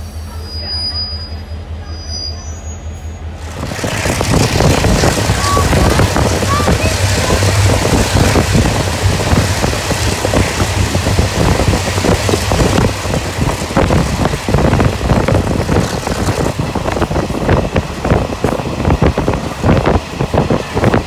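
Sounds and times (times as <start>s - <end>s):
train wheels on rails: 0.0s - 21.0s
wind rushing: 3.4s - 21.0s.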